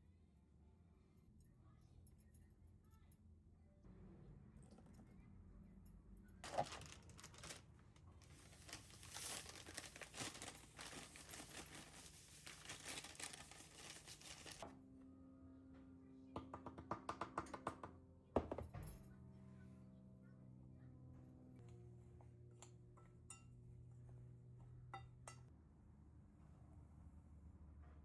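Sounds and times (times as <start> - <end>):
crinkling tearing rustle: 6.4 - 14.6.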